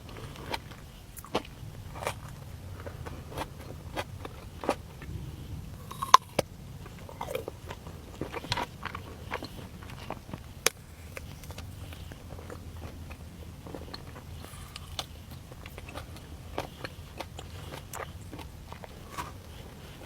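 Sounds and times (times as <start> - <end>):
crunchy pastry chewing: 0.0 - 20.0.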